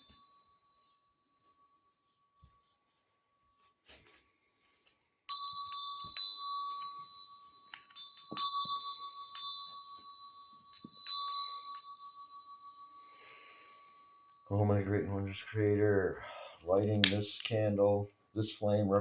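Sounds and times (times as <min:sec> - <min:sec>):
bell ringing: 0:00.0 - 0:02.8, 0:05.3 - 0:16.0.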